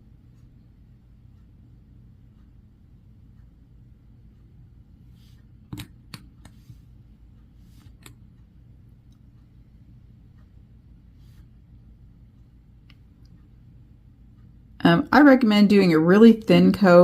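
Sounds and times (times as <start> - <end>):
steady low hum: 0.0 - 17.0
soft brushing: 5.0 - 5.6, 6.4 - 8.1, 11.0 - 11.7.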